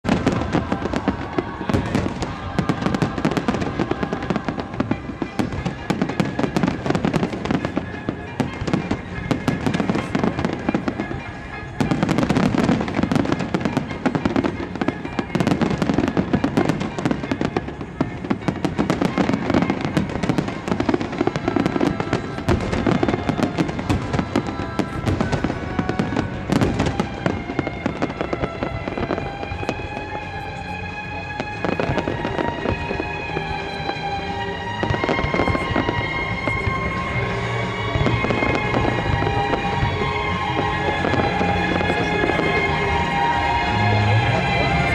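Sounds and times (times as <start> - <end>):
music playing: 0.0 - 44.9.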